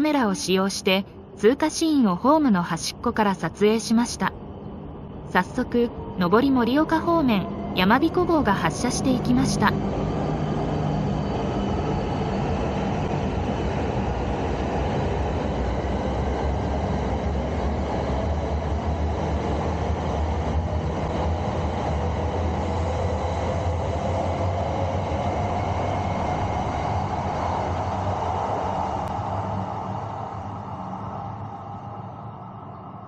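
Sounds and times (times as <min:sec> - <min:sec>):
rising train whine: 0:00.0 - 0:33.0
train wheels rumbling on rail: 0:09.1 - 0:32.6.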